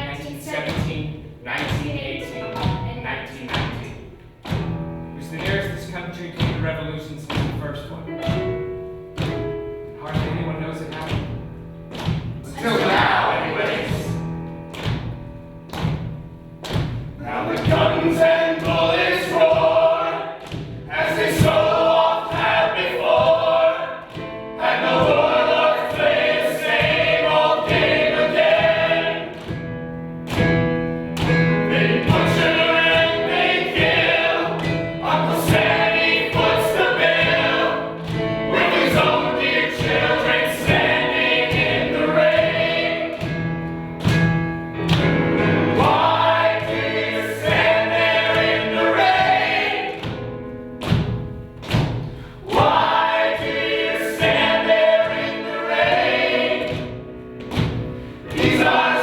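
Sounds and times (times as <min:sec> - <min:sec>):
low accompaniment: 0:00.0 - 0:59.0
choir singing: 0:12.4 - 0:14.4, 0:17.2 - 0:29.6, 0:31.3 - 0:43.7, 0:45.1 - 0:50.3, 0:52.4 - 0:59.0.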